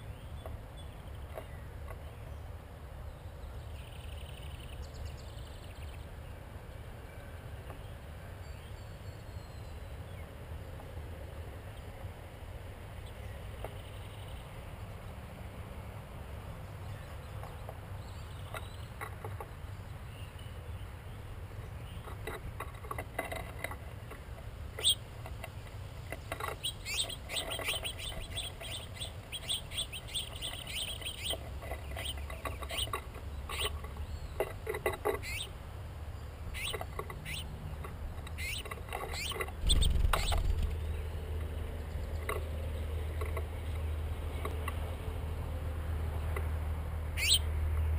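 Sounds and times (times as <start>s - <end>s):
small birds chirping: 0.0s - 10.9s, 12.8s - 15.2s, 16.5s - 45.1s, 47.1s - 47.9s
low steady rumble: 35.4s - 47.2s
loud thump: 39.6s - 40.6s.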